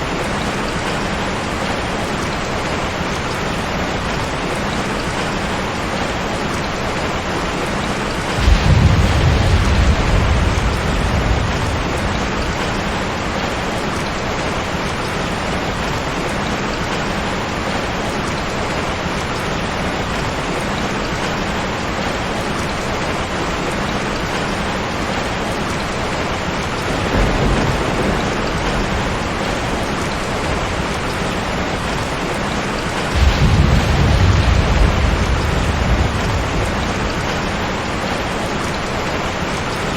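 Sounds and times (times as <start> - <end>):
steady rain: 0.0 - 39.9
thunder rolling: 7.6 - 14.2, 26.7 - 38.8.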